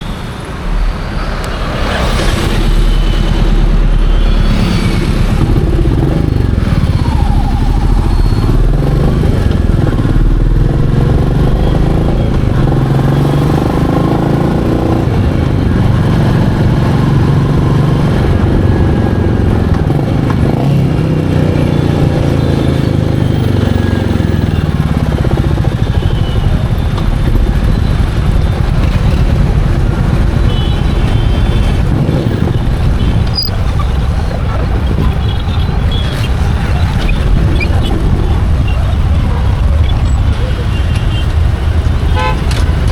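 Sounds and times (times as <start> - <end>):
motorcycle engine running: 1.9 - 42.9.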